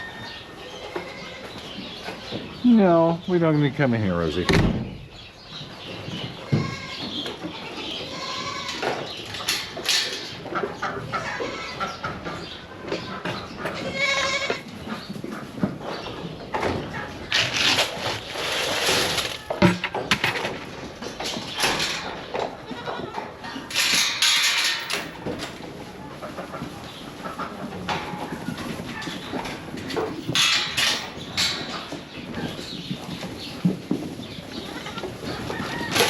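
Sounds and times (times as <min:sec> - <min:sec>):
barnyard noise: 0:00.0 - 0:36.0
goats bleating: 0:07.8 - 0:08.8, 0:13.8 - 0:14.6, 0:34.5 - 0:35.3.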